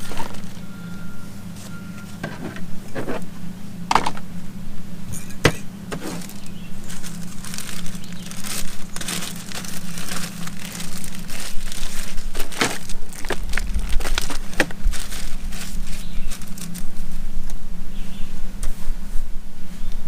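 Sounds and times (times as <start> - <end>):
rustling and crinkling: 0.0 - 0.8, 1.5 - 3.3, 5.4 - 17.3
steady low hum: 0.0 - 20.0.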